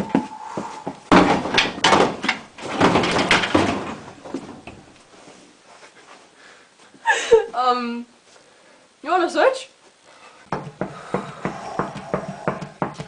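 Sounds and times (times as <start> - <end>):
flurry of knocks and thumps: 0.0 - 4.8, 10.5 - 13.0.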